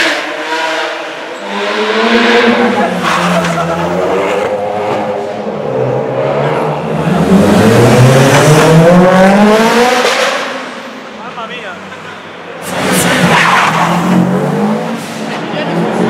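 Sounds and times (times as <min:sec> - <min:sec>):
car accelerating in tunnel: 0:00.0 - 0:11.2, 0:12.6 - 0:16.0.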